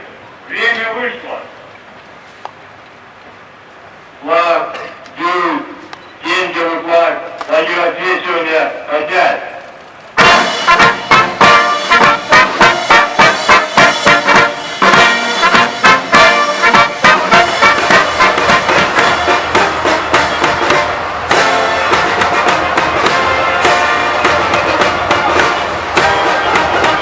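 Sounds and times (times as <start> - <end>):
military brass band playing: 10.2 - 27.0.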